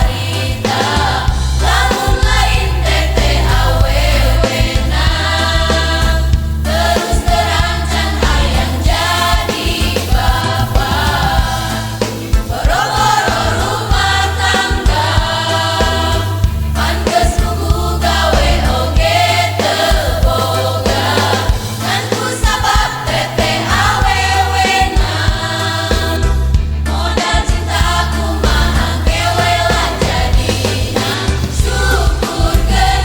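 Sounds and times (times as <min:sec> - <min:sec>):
choir singing in parts: 0:00.0 - 0:33.0
held low bass notes: 0:25.0 - 0:33.0.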